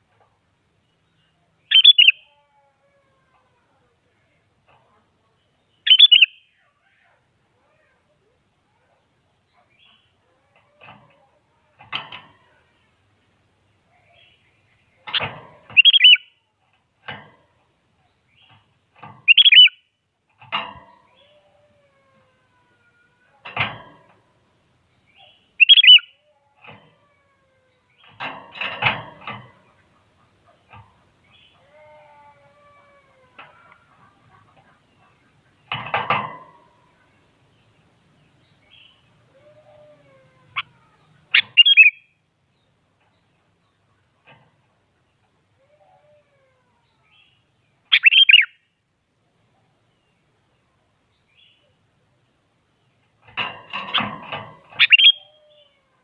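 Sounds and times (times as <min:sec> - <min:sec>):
bird whistled phrases: 0:01.7 - 0:02.2, 0:05.9 - 0:06.4, 0:25.6 - 0:26.1, 0:48.0 - 0:48.6, 0:54.8 - 0:55.3
loud sharp bird chirps: 0:01.7 - 0:02.3, 0:05.8 - 0:06.6, 0:15.2 - 0:16.3, 0:19.3 - 0:19.9, 0:25.2 - 0:26.2, 0:41.3 - 0:42.1, 0:47.9 - 0:48.7, 0:54.8 - 0:55.4
wing rustle or flutter: 0:25.1 - 0:37.4, 0:53.0 - 0:56.0.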